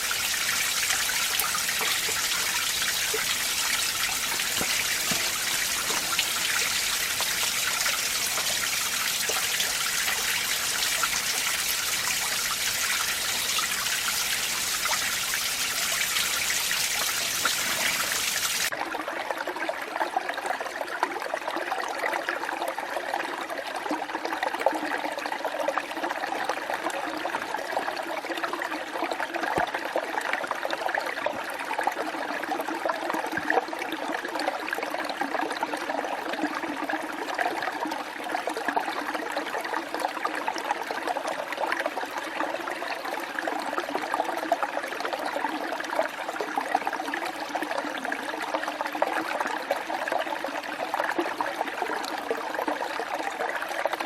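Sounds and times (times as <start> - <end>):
stream rushing over rocks: 0.0 - 18.7.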